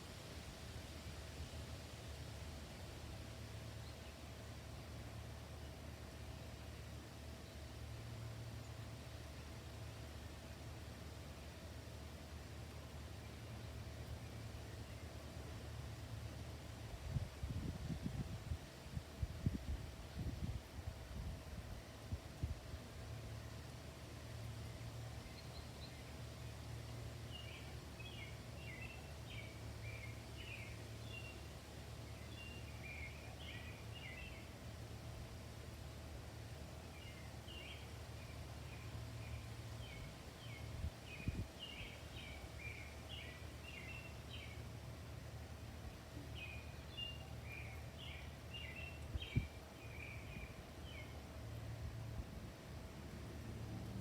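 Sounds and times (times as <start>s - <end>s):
faint hum: 0.0s - 54.0s
low background rumble: 0.0s - 54.0s
bird chirping: 26.8s - 34.6s, 37.0s - 44.7s, 46.3s - 51.2s.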